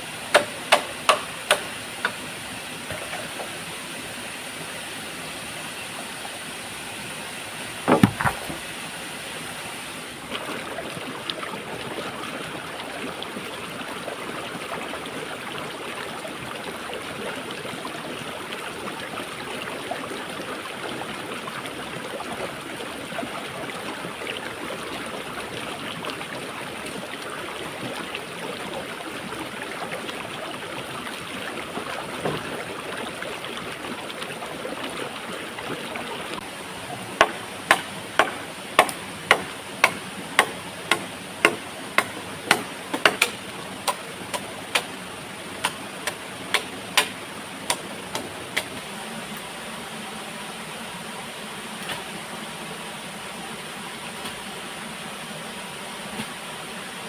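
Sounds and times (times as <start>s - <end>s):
waterfall and stream rushing: 0.0s - 57.0s
faint knocks: 7.9s - 8.7s.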